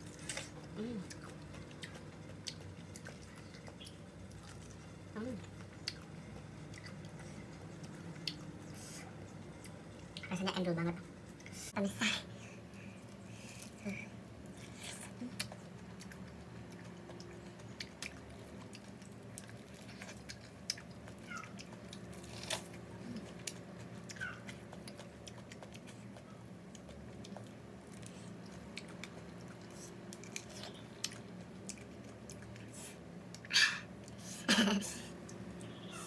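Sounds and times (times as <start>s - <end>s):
faint low hum: 0.0s - 36.0s
wet chewing crunches: 14.4s - 34.2s.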